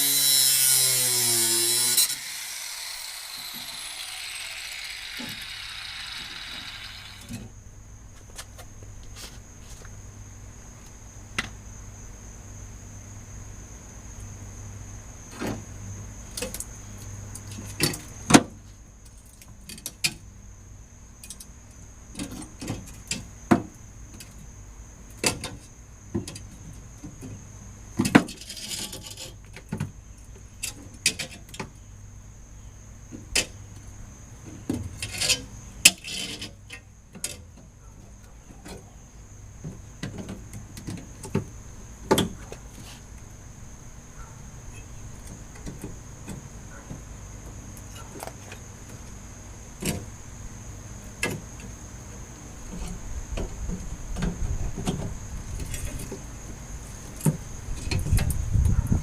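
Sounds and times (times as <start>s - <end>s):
faint high whine: 0.8s - 7.8s.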